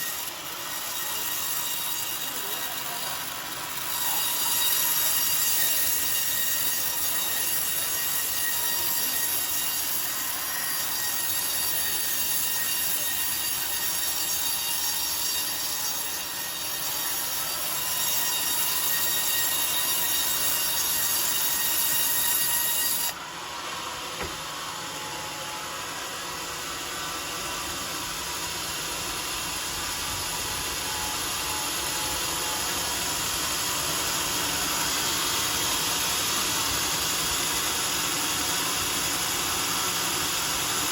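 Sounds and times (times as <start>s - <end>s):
saw cutting log: 0.0s - 23.2s
circular saw blade whining: 0.0s - 40.9s.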